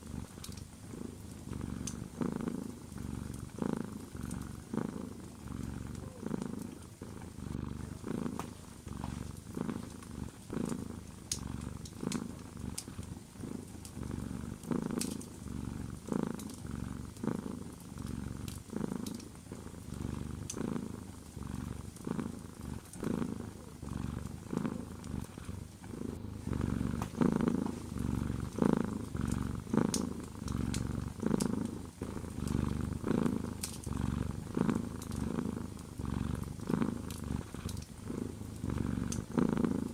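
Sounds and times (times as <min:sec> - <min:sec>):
cat purring: 0:00.0 - 0:39.9
wood fire crackling: 0:07.8 - 0:17.2, 0:32.4 - 0:34.3, 0:37.0 - 0:37.9.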